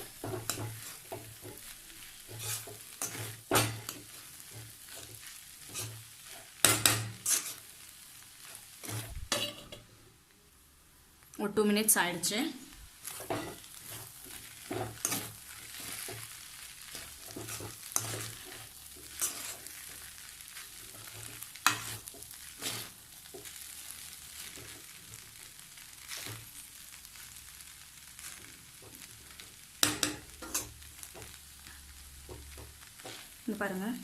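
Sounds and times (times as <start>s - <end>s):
spatula scraping a pan: 0.0s - 9.8s, 13.0s - 25.0s, 25.8s - 27.4s, 28.2s - 33.4s
food sizzling in oil: 0.0s - 34.0s.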